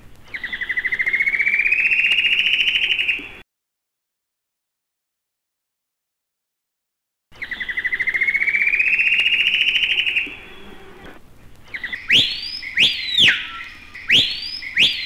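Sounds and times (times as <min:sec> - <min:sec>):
loud bird whistles: 0:00.3 - 0:03.4, 0:07.4 - 0:11.1, 0:11.7 - 0:15.0.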